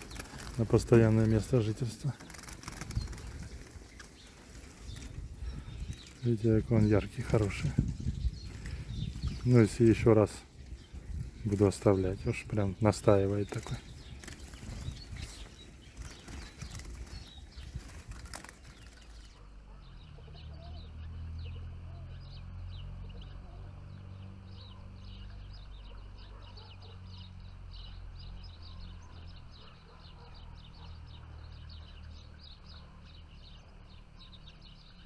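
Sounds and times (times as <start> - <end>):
rustling and fluttering: 0.0 - 19.6
small songbirds chirping: 0.0 - 35.0.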